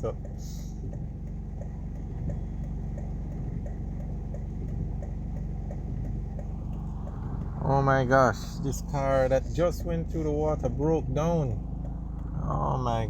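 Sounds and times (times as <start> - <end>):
car engine idling: 0.0 - 13.0
faint regular ticking: 0.0 - 13.0.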